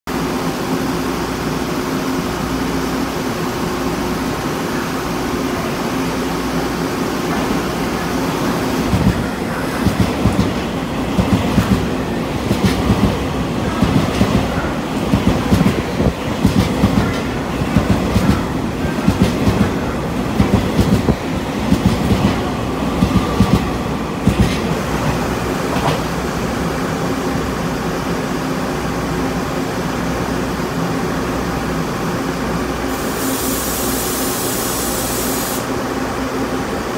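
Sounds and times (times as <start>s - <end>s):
train wheels clacking: 8.9s - 26.2s
high hiss: 32.9s - 35.8s.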